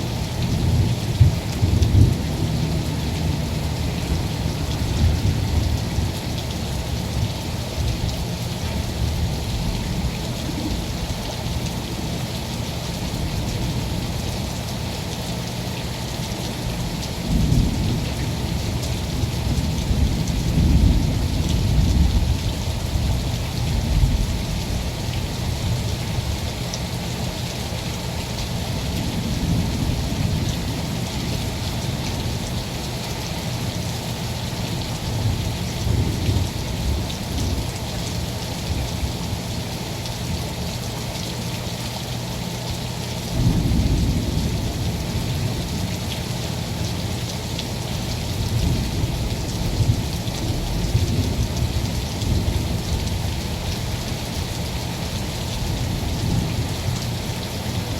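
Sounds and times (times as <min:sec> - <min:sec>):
rain falling: 0:00.0 - 0:57.9.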